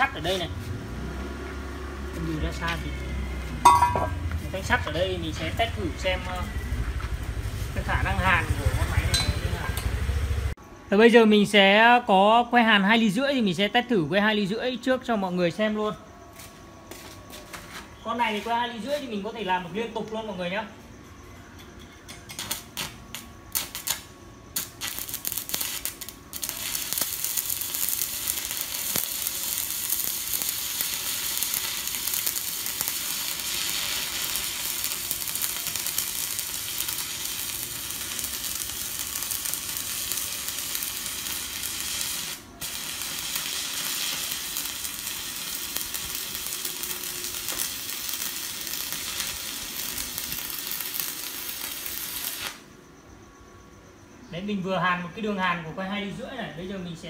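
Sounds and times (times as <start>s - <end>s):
welding arc crackling sizzle: 0.0s - 10.6s, 22.3s - 52.8s
welding arc sputtering strikes: 22.3s - 52.7s.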